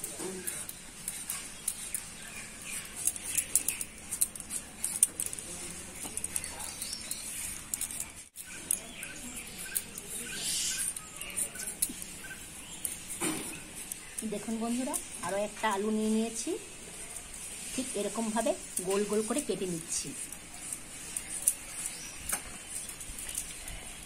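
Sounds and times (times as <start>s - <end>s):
small birds chirping: 0.0s - 24.0s
short evenly spaced bird notes: 0.4s - 4.8s, 6.0s - 16.8s.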